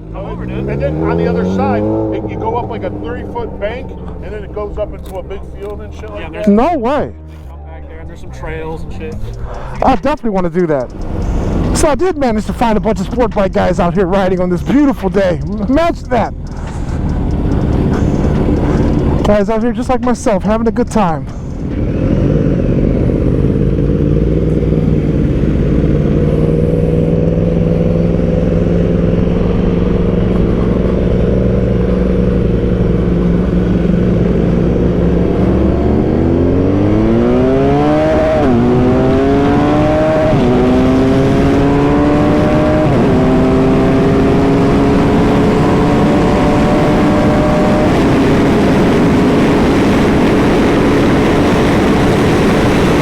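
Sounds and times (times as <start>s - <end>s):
motorcycle engine accelerating: 0.0s - 20.4s, 21.3s - 53.0s
wind noise: 21.4s - 53.0s.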